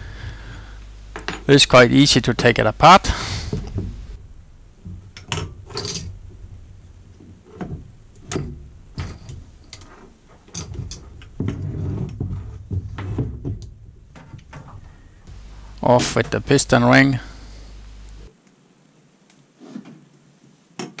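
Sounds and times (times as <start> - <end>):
small metal parts knocking: 4.9 - 6.5
hand tools clicking and scraping: 7.1 - 17.0.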